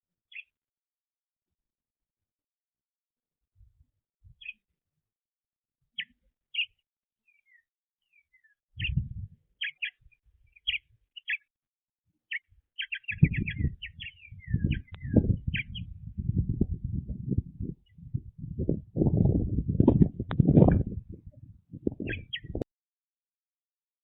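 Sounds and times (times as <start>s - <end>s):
small birds chirping: 0.3s - 0.5s, 4.4s - 4.6s, 6.0s - 11.5s, 12.3s - 16.2s, 21.8s - 22.6s
low rumble: 13.3s - 22.6s
steady low rumbling noise: 13.3s - 22.6s.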